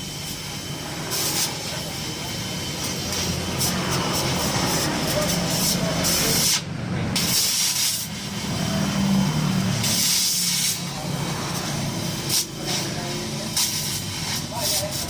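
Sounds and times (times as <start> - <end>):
exhaust hiss: 0.0 - 15.0
rough low engine exhaust: 0.0 - 15.0.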